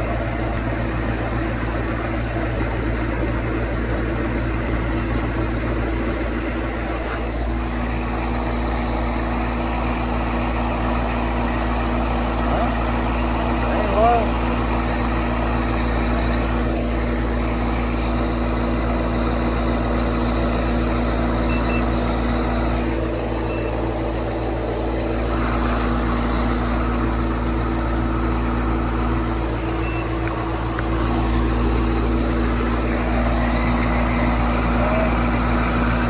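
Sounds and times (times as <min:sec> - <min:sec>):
compressor electrical hum: 0:00.0 - 0:36.0
condenser fan rushing: 0:00.0 - 0:36.0.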